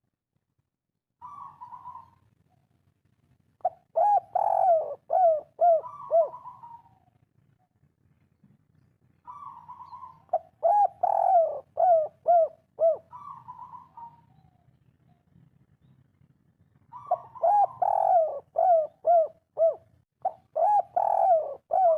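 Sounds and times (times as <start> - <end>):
dove cooing: 1.2 - 2.2, 3.6 - 7.2, 9.2 - 15.2, 16.8 - 21.9.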